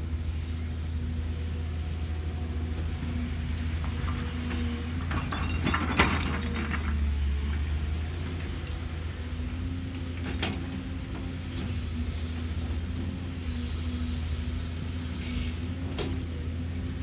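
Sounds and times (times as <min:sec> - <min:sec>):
excavator diesel engine: 0:00.0 - 0:17.0
metallic clanks and scraping: 0:03.9 - 0:07.0.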